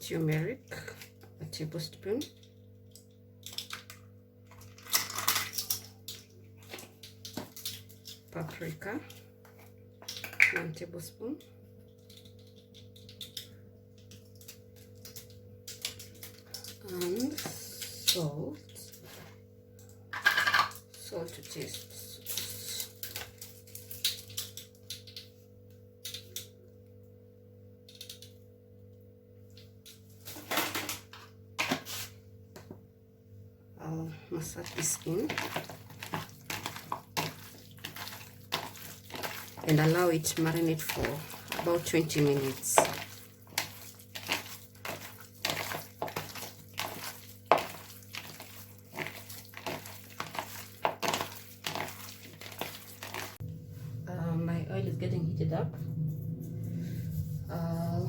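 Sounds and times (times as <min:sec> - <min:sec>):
kitchen utensils clicking on bowl: 0:34.6 - 0:53.4.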